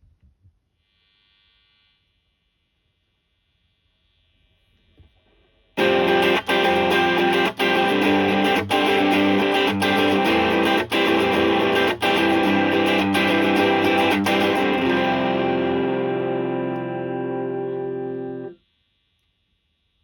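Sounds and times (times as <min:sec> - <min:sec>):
overdriven electric guitar chords: 0:05.8 - 0:18.6.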